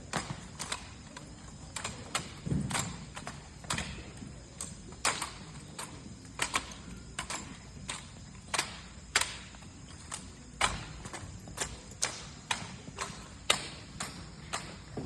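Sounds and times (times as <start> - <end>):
hands slapping wooden rifles: 5.0 - 15.0.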